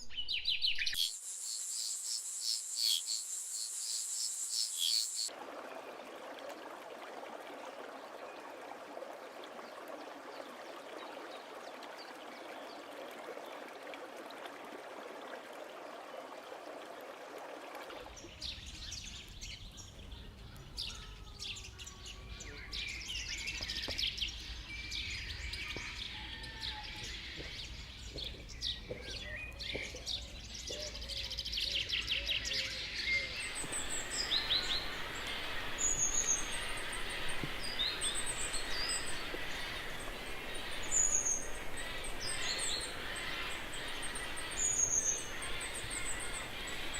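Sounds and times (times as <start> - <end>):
birds chirping and calling: 0.3 - 5.3, 33.1 - 46.9
steady even hiss: 1.0 - 5.3, 33.4 - 46.9.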